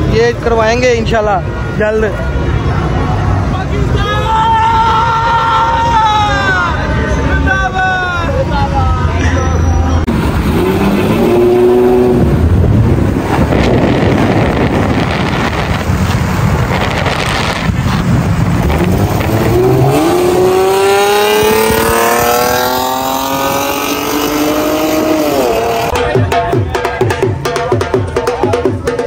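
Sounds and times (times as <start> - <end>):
cars passing at speed: 10.0 - 26.0
engine accelerating hard: 10.0 - 26.0.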